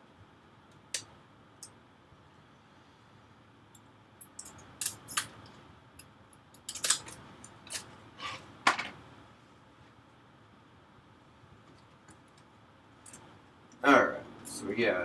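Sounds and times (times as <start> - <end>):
small parts and tools clicking: 3.7 - 7.9.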